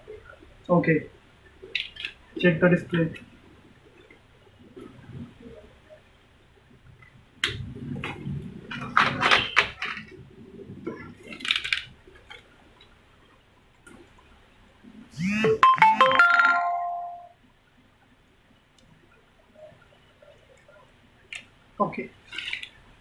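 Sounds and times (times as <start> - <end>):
electronic jingle: 15.2 - 17.4.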